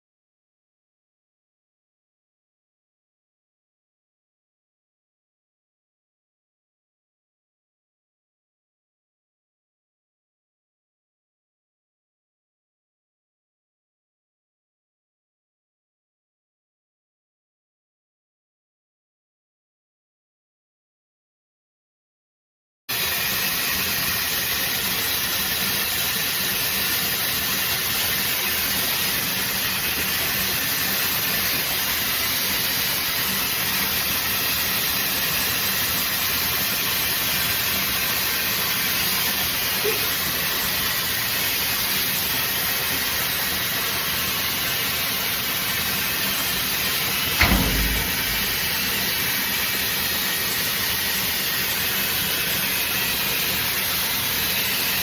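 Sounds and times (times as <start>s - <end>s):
low thump: 47.4s - 49.1s.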